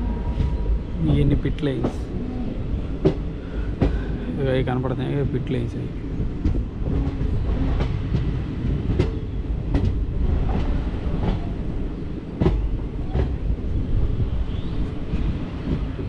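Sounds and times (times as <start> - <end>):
train wheels rumbling on track: 0.0 - 16.0
wheels clacking over rail joints: 6.2 - 13.5.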